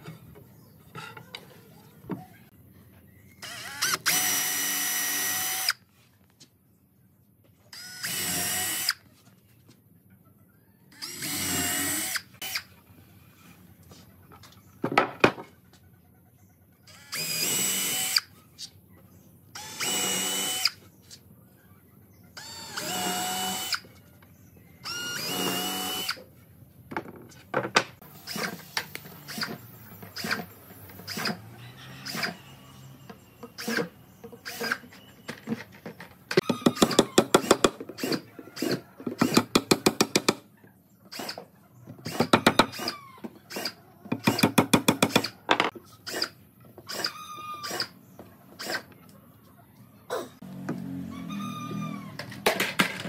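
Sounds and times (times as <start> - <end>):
cordless drill boring wood: 3.4 - 5.8, 7.8 - 9.0, 10.9 - 12.6, 16.9 - 18.3, 19.6 - 20.8, 22.4 - 23.9, 24.8 - 26.2, 31.1 - 32.8, 36.4 - 40.4, 42.0 - 45.3.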